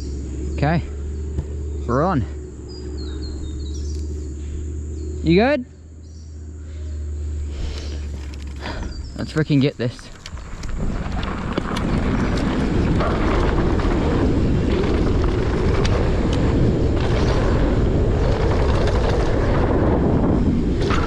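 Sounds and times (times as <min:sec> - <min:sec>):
bike tyres rolling on dirt: 0:00.0 - 0:21.0
wind rushing over microphone: 0:07.4 - 0:21.0
clicks and rattles: 0:07.7 - 0:13.9.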